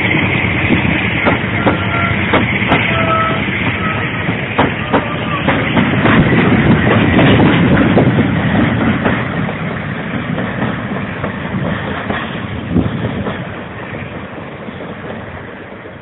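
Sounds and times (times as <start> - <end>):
diesel train running: 0.0 - 16.0.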